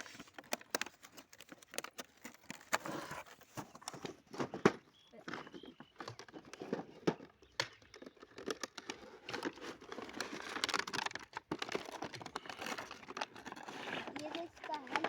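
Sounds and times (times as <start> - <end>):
plastic packaging crinkling: 0.0 - 4.0, 7.8 - 15.0.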